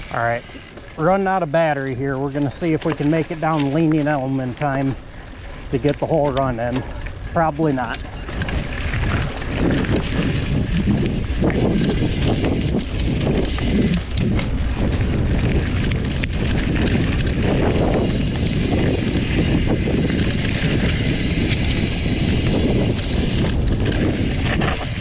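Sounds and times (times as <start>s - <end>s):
bike rattles and knocks: 0.0s - 25.0s
bike tyre noise on dirt: 0.0s - 25.0s
wind buffeting microphone: 0.0s - 25.0s.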